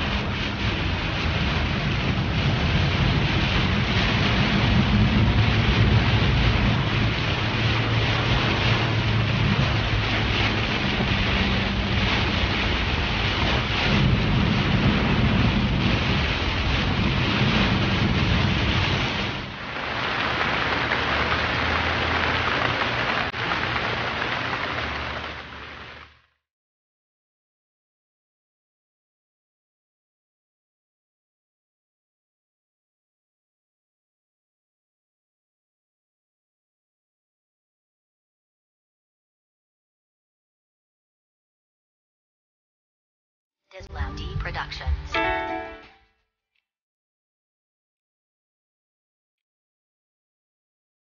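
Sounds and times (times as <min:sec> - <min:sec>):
truck rumble: 0:00.0 - 0:26.3
tyres on wet road: 0:00.0 - 0:26.3
heavy rain on a vehicle: 0:00.0 - 0:26.4.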